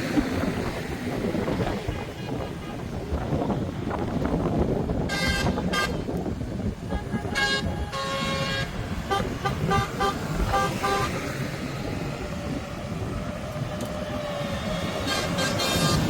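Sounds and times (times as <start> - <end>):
engine rumble: 0.0 - 16.0
vehicle horns tooting: 1.7 - 3.7, 5.0 - 6.1, 6.8 - 11.3, 14.9 - 16.0.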